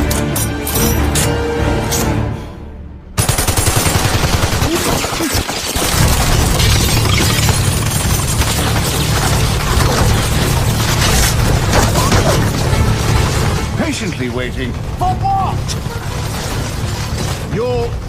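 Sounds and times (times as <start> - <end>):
film score music: 0.0 - 18.0
rapid machine-gun fire: 3.2 - 13.8.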